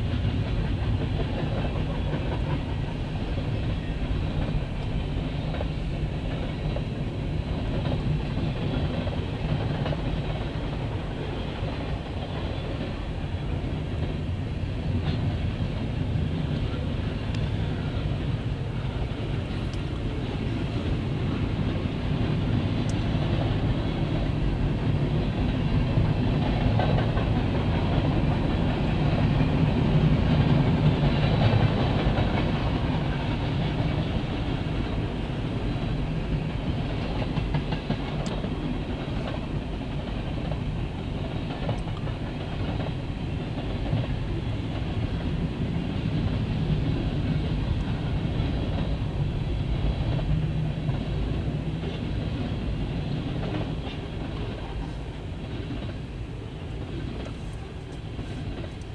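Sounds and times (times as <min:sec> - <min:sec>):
freight train wheels rumbling on rails: 0:00.0 - 0:58.9
faint clicks: 0:19.6 - 0:20.1.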